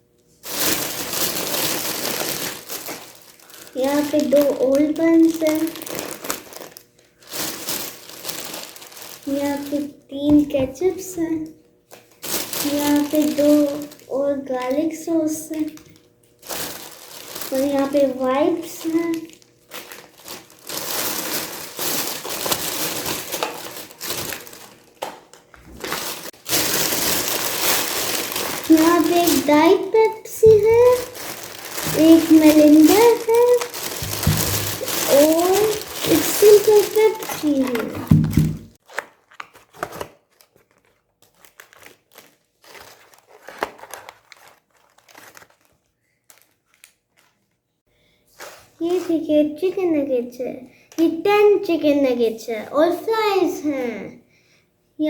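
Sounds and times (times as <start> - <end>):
food packaging rustling: 0.4 - 47.5.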